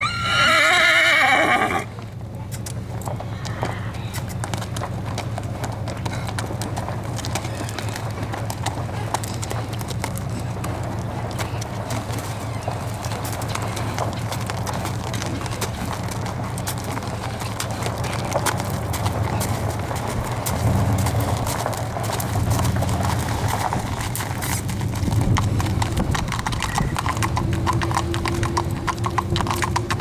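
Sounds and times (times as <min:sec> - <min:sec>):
hooves clip-clopping: 0:00.0 - 0:30.0
low rumble: 0:18.6 - 0:30.0.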